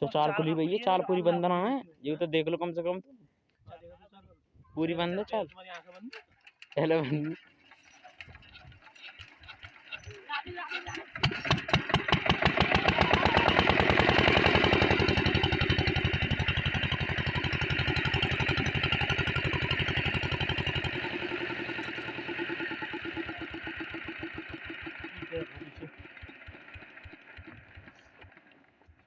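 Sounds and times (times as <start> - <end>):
diesel engine chugging: 8.0 - 29.0.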